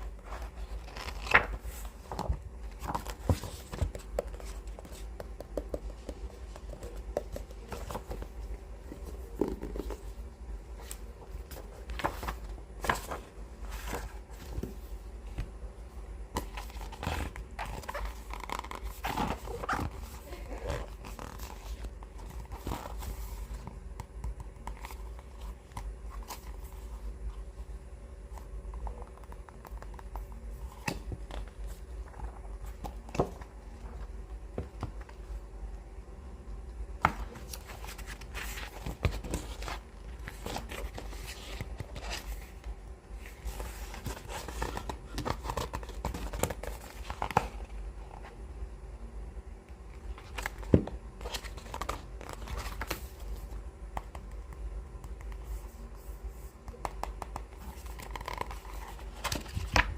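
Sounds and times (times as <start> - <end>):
steady low hum: 0.0 - 59.9
paper rustling: 0.1 - 15.5, 37.0 - 47.7, 56.8 - 59.9
fingers tapping book covers: 0.9 - 10.1.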